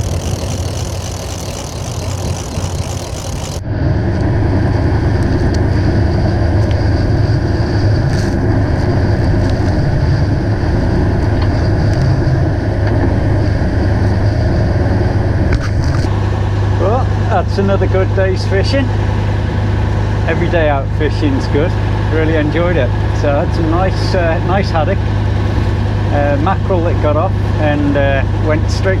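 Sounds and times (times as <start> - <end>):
water noise: 0.0 - 3.6
boat engine droning: 0.0 - 29.0
wind: 0.0 - 29.0.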